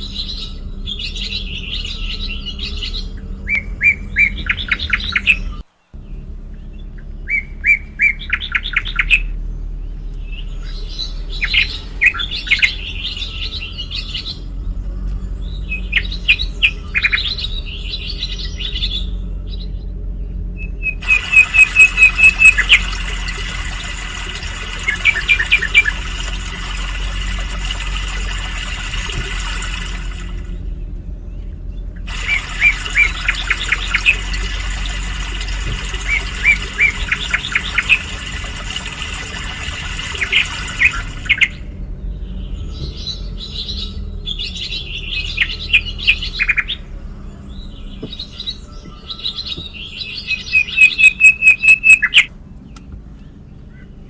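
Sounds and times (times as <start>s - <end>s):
songbirds chirping: 0.0s - 54.0s
steady hiss: 21.0s - 30.6s, 32.1s - 41.6s.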